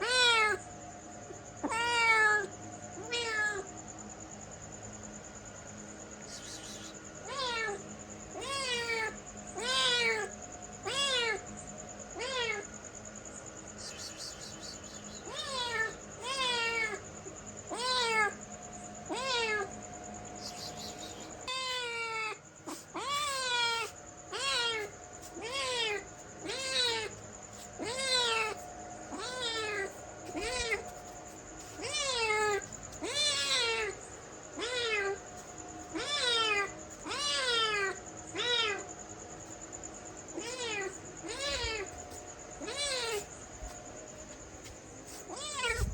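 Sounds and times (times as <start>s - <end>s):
cat meowing: 0.0s - 0.6s, 1.6s - 3.7s, 7.2s - 7.8s, 8.4s - 11.4s, 12.2s - 12.7s, 15.2s - 17.0s, 17.7s - 18.4s, 19.1s - 19.8s, 20.5s - 34.0s, 34.6s - 35.2s, 35.9s - 38.9s, 40.4s - 42.0s, 42.6s - 43.3s, 45.1s - 45.9s.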